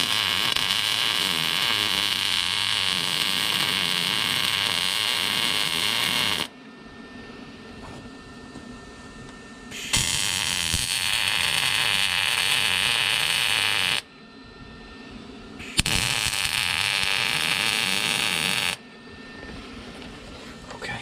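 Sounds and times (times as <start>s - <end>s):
arc welding hiss: 0.0s - 6.5s, 9.7s - 14.0s, 15.6s - 18.8s.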